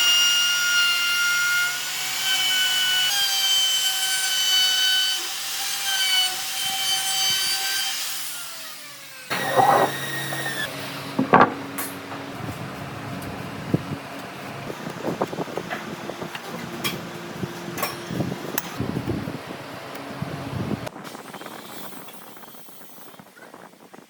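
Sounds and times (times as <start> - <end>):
electric saw cutting wood: 0.0 - 12.2
workshop noises: 9.3 - 20.9
sharp knocks: 9.4 - 11.9.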